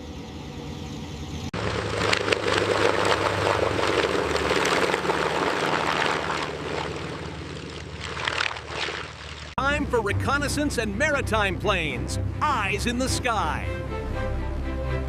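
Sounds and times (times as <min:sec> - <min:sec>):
aircraft piston engines droning: 0:00.0 - 0:08.4, 0:09.2 - 0:15.0
rough engine noise with crackle: 0:00.0 - 0:09.6.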